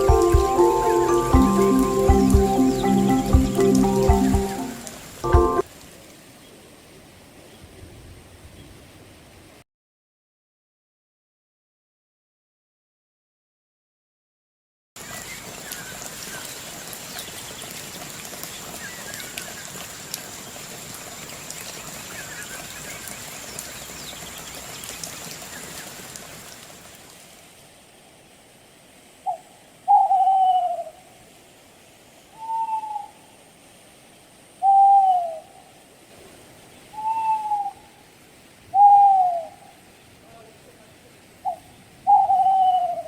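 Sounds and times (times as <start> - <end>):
outdoor hiss: 0.0 - 9.6, 15.0 - 43.0
animal hoot-like call: 29.3 - 30.9, 32.4 - 33.2, 34.6 - 35.5, 36.9 - 38.0, 38.7 - 39.6, 41.5 - 43.0.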